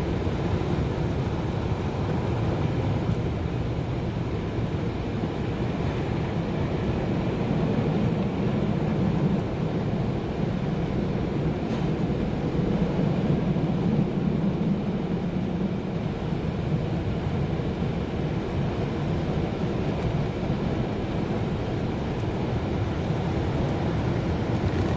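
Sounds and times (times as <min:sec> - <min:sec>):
car wash machinery rumbling: 0:18.4 - 0:24.9.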